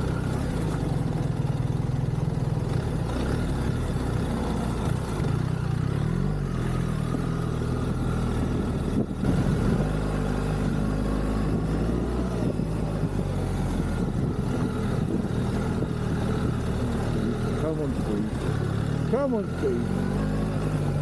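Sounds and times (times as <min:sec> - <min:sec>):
motorcycle engine under load: 0:00.0 - 0:21.0.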